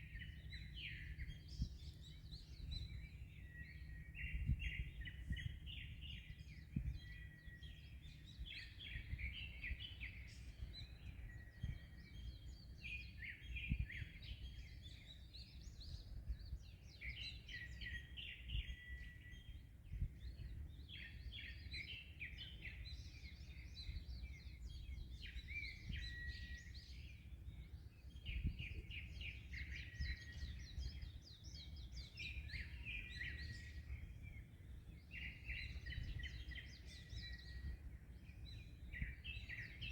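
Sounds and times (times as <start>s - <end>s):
small birds chirping: 0.0s - 39.9s
wind rumble: 0.3s - 11.9s.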